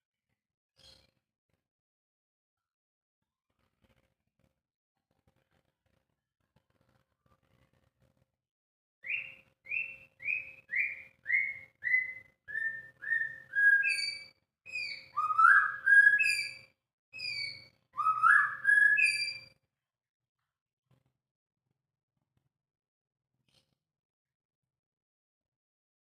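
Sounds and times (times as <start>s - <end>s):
bird singing whistled notes: 9.0s - 19.5s.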